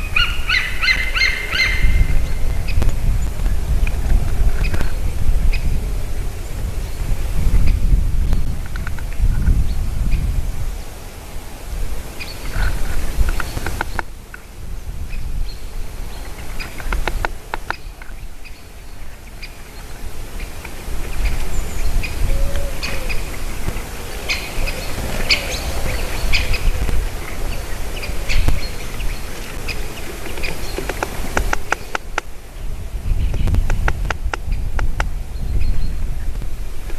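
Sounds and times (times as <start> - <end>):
small birds chirping: 12.2 - 36.4.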